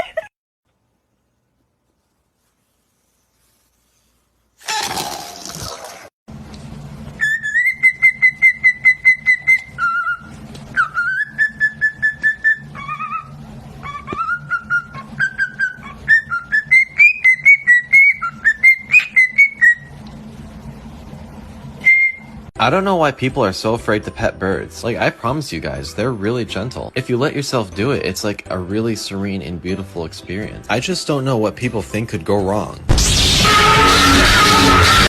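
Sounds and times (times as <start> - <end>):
steady low hum: 6.3 - 26.2
whistled tune of rapid notes: 7.2 - 19.9, 21.8 - 22.4
harsh noisy call: 32.9 - 35.0.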